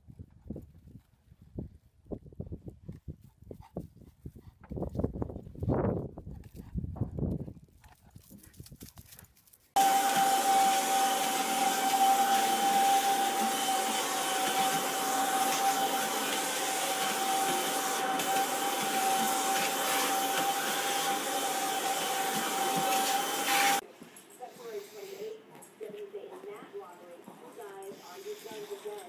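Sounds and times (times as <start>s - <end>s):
vacuum cleaner running: 9.8s - 23.8s, 27.9s - 29.0s.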